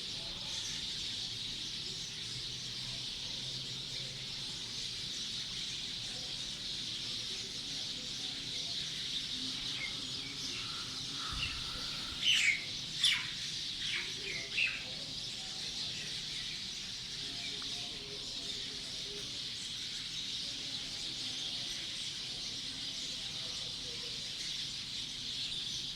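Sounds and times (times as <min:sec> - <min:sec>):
birds chirping: 0:00.0 - 0:25.9
high-pitched hiss of bird calls: 0:08.9 - 0:15.3
loud sharp bird chirps: 0:09.8 - 0:14.1.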